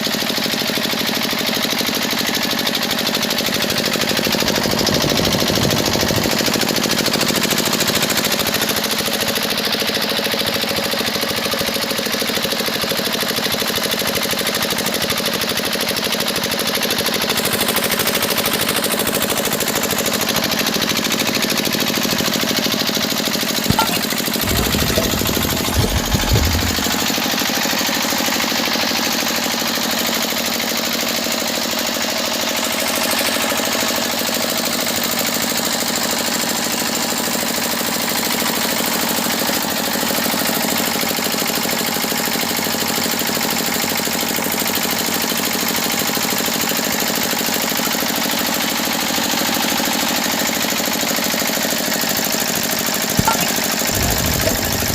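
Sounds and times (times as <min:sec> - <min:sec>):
low thumps: 0:23.7 - 0:27.0
small motor running: 0:23.7 - 0:27.2, 0:53.1 - 0:54.9.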